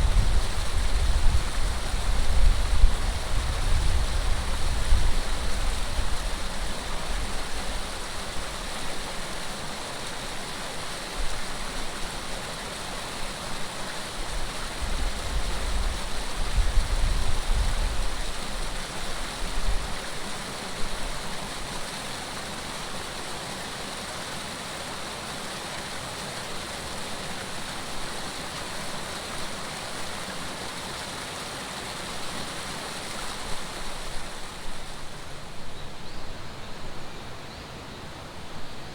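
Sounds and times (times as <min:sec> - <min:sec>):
wind buffeting microphone: 0:00.0 - 0:07.3, 0:14.8 - 0:18.4
water rushing: 0:00.0 - 0:38.9.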